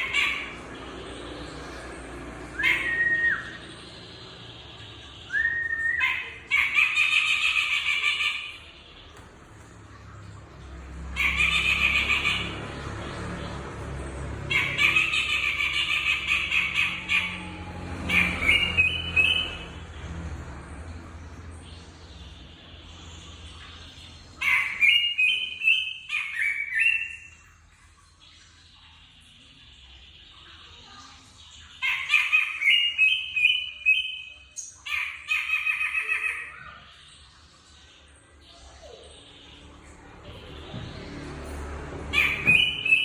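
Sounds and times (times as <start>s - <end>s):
bird calling with squawky notes: 0.0s - 9.4s, 11.1s - 12.9s, 14.3s - 19.8s, 23.6s - 27.5s, 30.5s - 37.3s, 42.1s - 43.0s
songbird squeaky calls: 42.1s - 43.0s.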